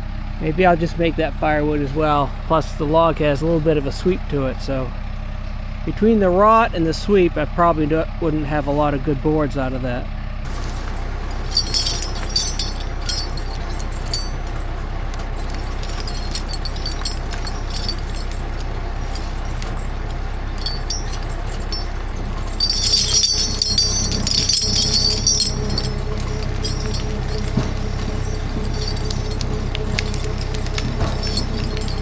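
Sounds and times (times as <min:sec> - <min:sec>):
metallic clinking and jingling: 0:10.5 - 0:32.0.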